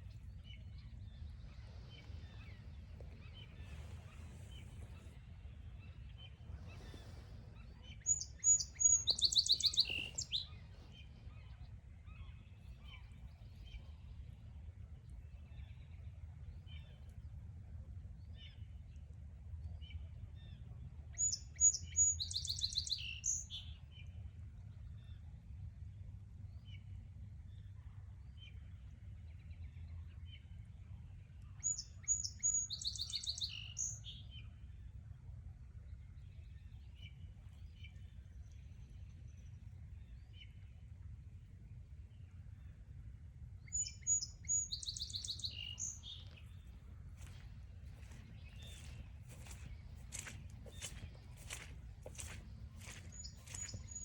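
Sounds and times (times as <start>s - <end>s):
faint bird chirps: 0.0s - 14.0s, 31.6s - 34.2s, 43.7s - 54.0s
songbird singing: 0.0s - 17.3s, 19.9s - 24.2s, 31.3s - 34.7s, 43.6s - 54.0s.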